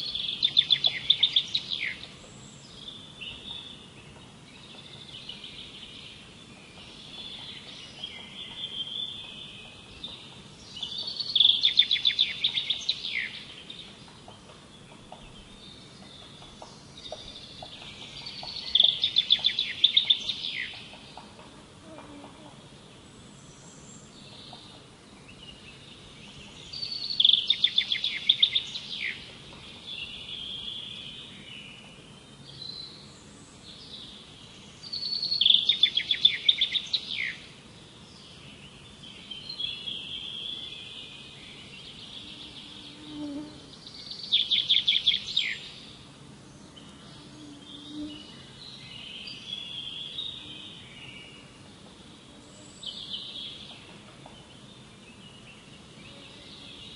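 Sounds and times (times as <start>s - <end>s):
soft bird chirps: 0.0s - 22.5s
bird song of rapid repeated notes: 0.0s - 56.9s.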